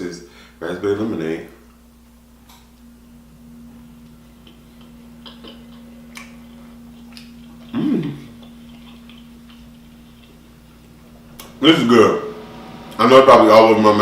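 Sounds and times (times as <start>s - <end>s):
steady low hum: 0.0s - 14.0s
wet chewing clicks and smacks: 4.0s - 11.5s
person humming: 7.7s - 8.4s.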